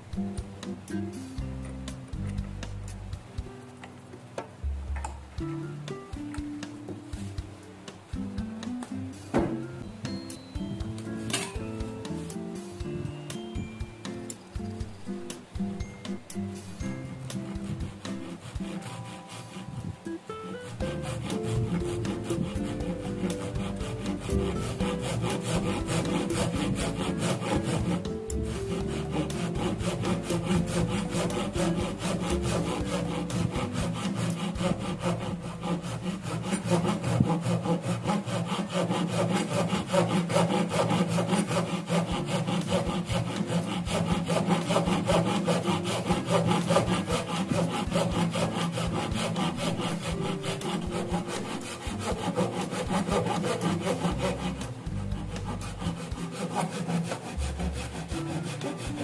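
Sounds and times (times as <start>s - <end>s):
saw cutting wood: 16.8s - 59.0s.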